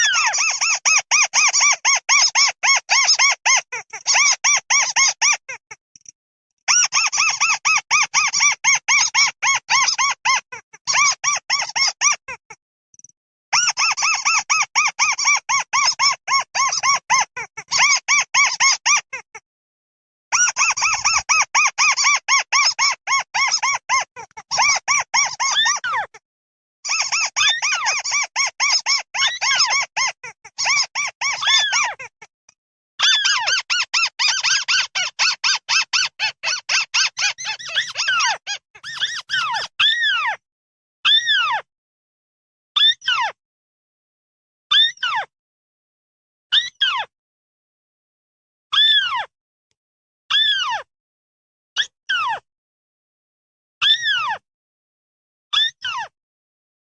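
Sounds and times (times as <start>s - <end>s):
bird calling squeaky notes: 0.0s - 5.7s, 20.3s - 26.2s, 33.0s - 40.4s
bird flock calling: 36.0s - 39.8s.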